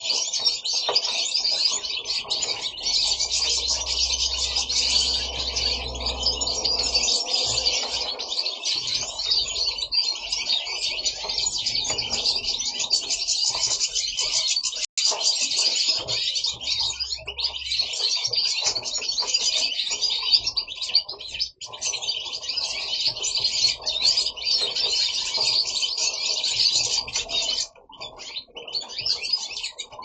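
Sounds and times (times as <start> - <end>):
goldfinches twittering: 0.0 - 14.8.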